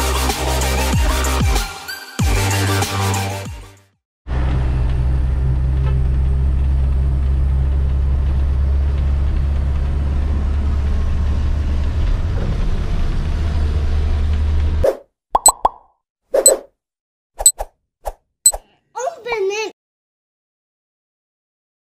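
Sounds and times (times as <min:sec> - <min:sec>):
vehicle engine and road noise: 0:04.3 - 0:14.8.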